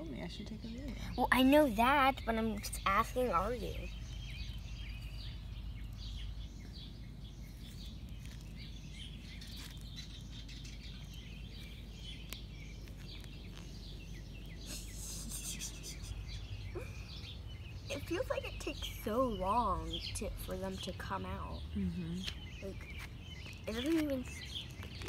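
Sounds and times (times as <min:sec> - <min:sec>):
birds chirping: 0:00.0 - 0:25.0
steady outdoor hum: 0:00.0 - 0:25.0.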